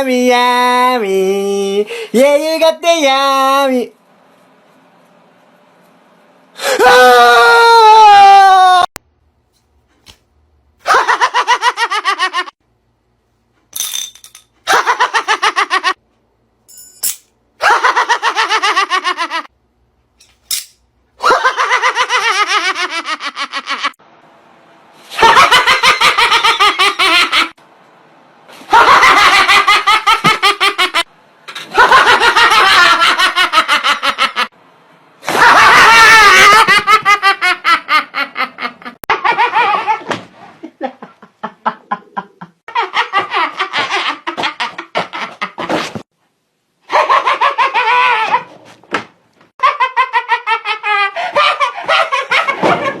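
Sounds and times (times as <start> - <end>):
person laughing hard: 10.8 - 12.6, 17.6 - 19.5, 21.2 - 24.0, 35.3 - 45.9, 46.9 - 48.6, 49.6 - 53.0.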